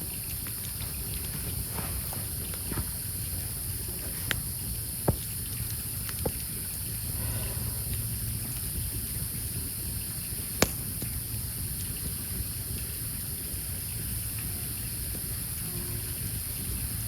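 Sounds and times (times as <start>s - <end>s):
campfire rushing and hissing: 0.0s - 17.0s
faint fire crackles: 0.0s - 17.0s
loud pop from burning logs: 3.6s - 6.9s, 9.2s - 12.3s.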